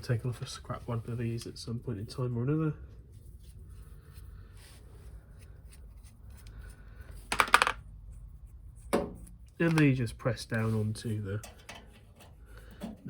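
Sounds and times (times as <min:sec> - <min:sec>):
handling small parts: 0:04.6 - 0:08.1, 0:08.8 - 0:10.7.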